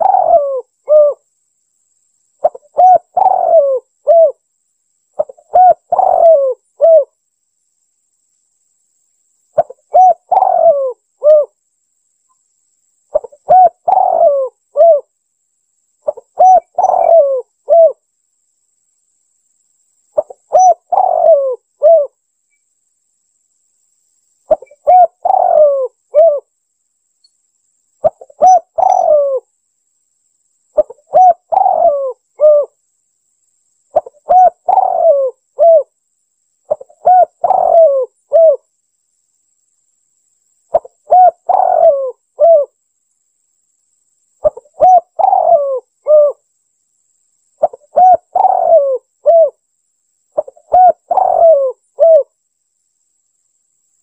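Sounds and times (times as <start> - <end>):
dove cooing: 0.0 - 1.2, 2.4 - 4.4, 5.2 - 7.1, 9.6 - 11.6, 13.1 - 15.1, 16.0 - 18.0, 20.2 - 22.2, 24.5 - 26.5, 28.0 - 29.5, 30.8 - 32.8, 33.9 - 35.9, 36.7 - 38.6, 40.7 - 42.8, 44.4 - 46.4, 47.6 - 49.6, 50.4 - 52.3.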